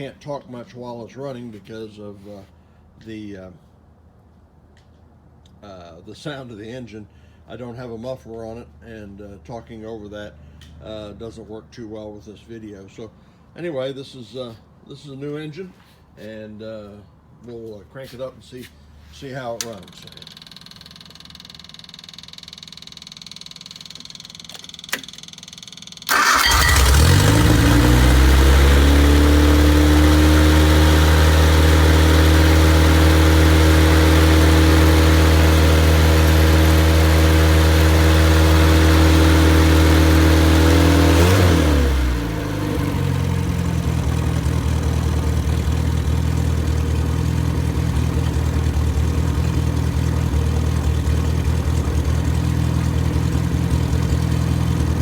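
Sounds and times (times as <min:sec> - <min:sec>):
car engine starting and idling: 0:26.1 - 0:55.0.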